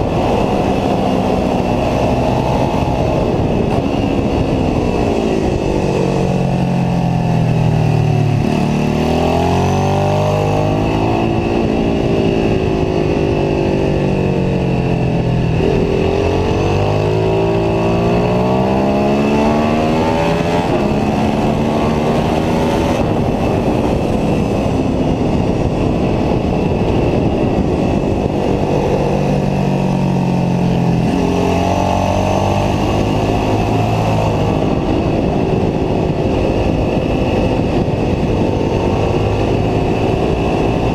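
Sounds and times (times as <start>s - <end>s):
motorcycle engine accelerating: 0.0s - 40.9s
wind rushing on camera: 0.0s - 40.9s.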